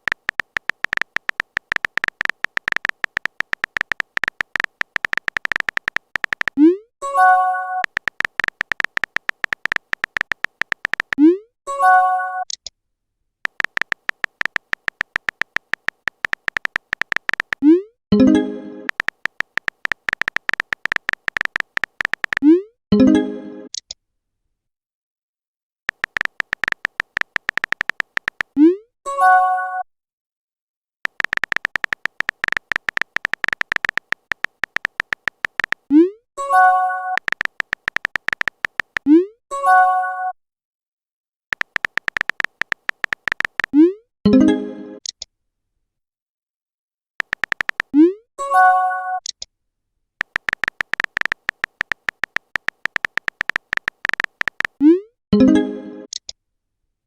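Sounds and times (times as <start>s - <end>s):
keyboard tap clicks: 0.0s - 6.6s, 7.8s - 11.2s, 13.4s - 17.6s, 18.9s - 22.5s, 25.9s - 28.6s, 31.1s - 35.9s, 37.1s - 39.1s, 41.5s - 43.8s, 47.2s - 48.0s, 50.2s - 54.8s
electronic typing ticks with beeps: 0.0s - 12.6s, 13.4s - 23.9s, 25.9s - 29.8s, 31.0s - 40.4s, 41.5s - 45.2s, 47.2s - 49.4s, 50.2s - 56.3s.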